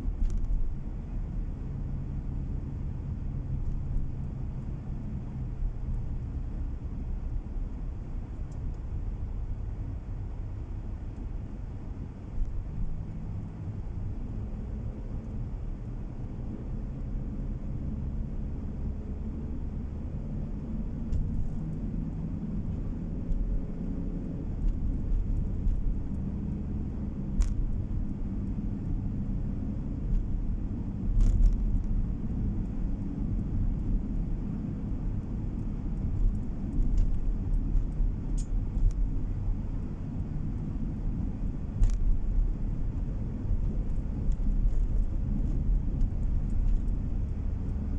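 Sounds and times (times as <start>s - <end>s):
car tyres and engine rumble: 0.0s - 47.9s
faint sharp clicks: 27.3s - 29.0s, 31.1s - 47.9s.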